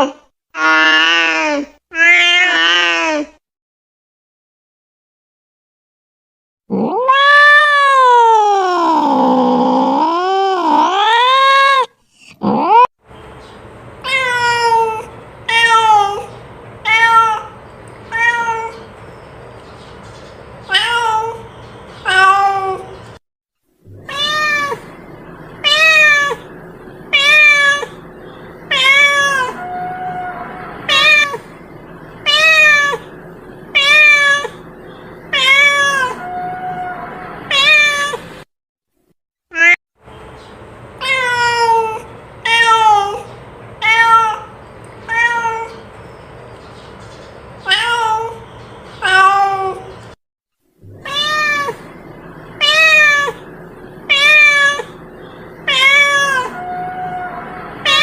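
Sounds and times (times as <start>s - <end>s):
cat meowing: 0.6s - 3.3s, 6.7s - 12.9s, 14.0s - 18.9s, 20.7s - 23.0s, 23.9s - 25.0s, 25.6s - 28.0s, 28.7s - 31.5s, 32.2s - 33.1s, 33.7s - 34.7s, 35.3s - 38.3s, 39.5s - 39.8s, 41.0s - 45.8s, 47.6s - 48.4s, 49.0s - 50.0s, 50.9s - 51.9s, 52.5s - 55.0s, 55.6s - 58.0s
faint steady hum: 23.9s - 37.6s, 50.8s - 58.0s.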